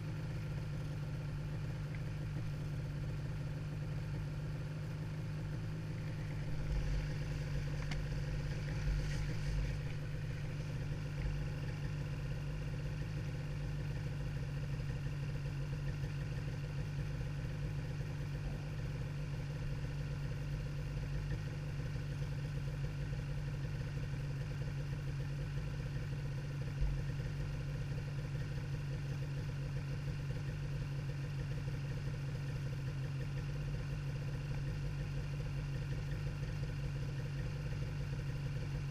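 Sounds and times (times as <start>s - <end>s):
snowmobile engine running: 5.4s - 14.1s.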